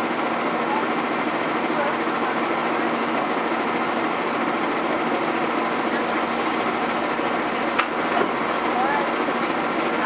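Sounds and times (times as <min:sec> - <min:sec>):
train equipment humming: 0:04.9 - 0:10.0.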